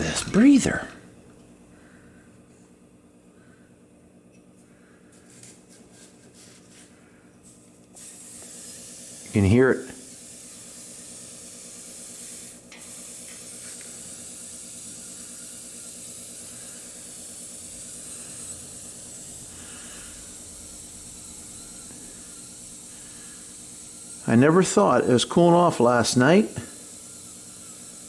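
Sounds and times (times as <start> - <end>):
air hissing from a valve: 7.4 - 28.0.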